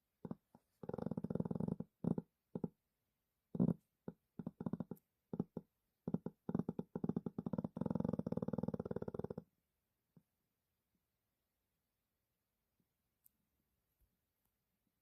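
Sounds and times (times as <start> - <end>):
dog snoring: 0.2 - 2.7, 3.6 - 9.4.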